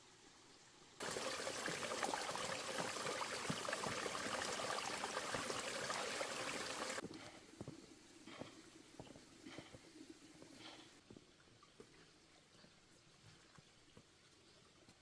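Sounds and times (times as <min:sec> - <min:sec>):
running water rushing: 0:01.0 - 0:07.0.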